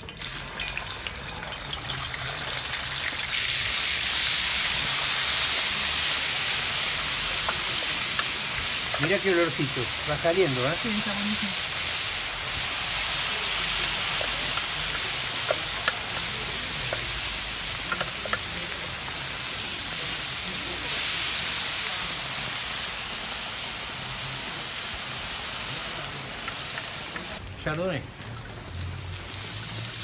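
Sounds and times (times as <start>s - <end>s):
garlic sizzling in hot oil: 0.0s - 30.0s
wooden spoon stirring: 7.3s - 11.0s, 13.7s - 19.2s.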